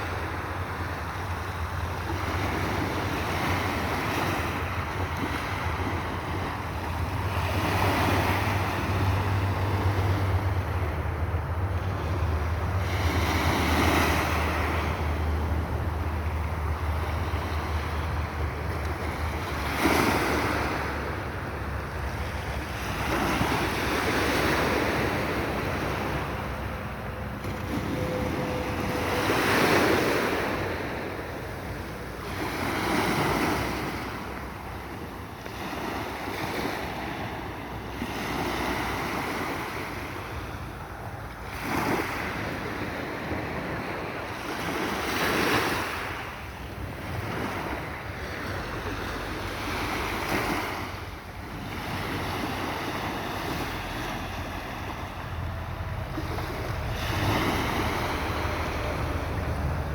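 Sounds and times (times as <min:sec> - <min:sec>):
sea waves breaking: 0:00.0 - 0:59.9
wind buffeting microphone: 0:38.7 - 0:59.9.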